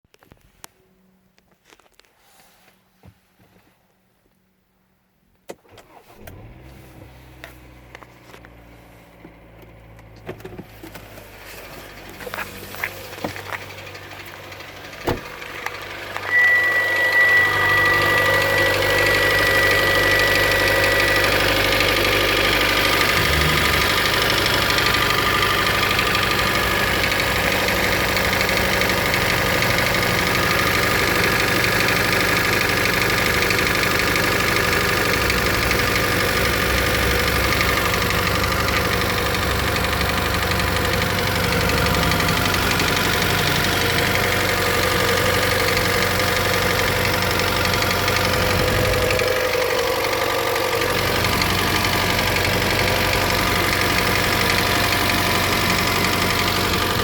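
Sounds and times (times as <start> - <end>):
car engine starting and idling: 5.4 - 57.0
steady high tone: 16.2 - 21.5.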